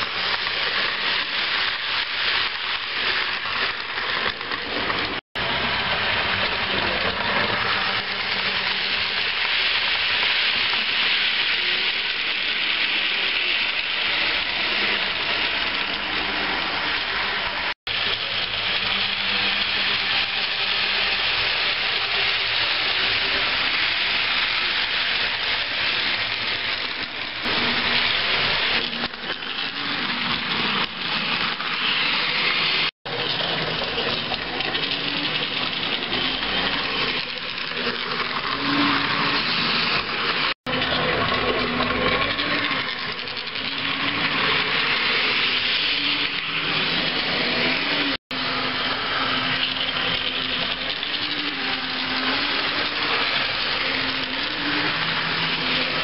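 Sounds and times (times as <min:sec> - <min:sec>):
model train wheels rolling: 0:00.0 - 0:56.0.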